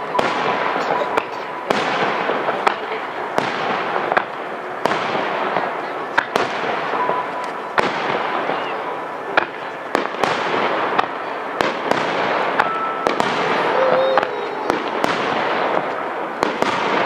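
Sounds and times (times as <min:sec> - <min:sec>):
fireworks bursting: 0:00.0 - 0:17.0
hiss of burning fireworks: 0:00.0 - 0:17.0.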